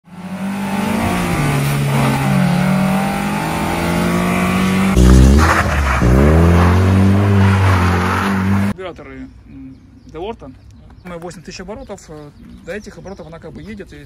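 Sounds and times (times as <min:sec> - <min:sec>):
car engines revving high: 0:00.0 - 0:08.8.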